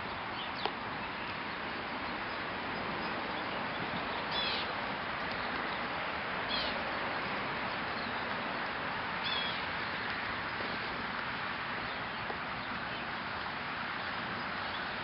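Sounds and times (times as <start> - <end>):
steady outdoor hiss: 0.0 - 15.0
bird calls: 0.1 - 5.9, 6.5 - 6.9, 7.6 - 11.0.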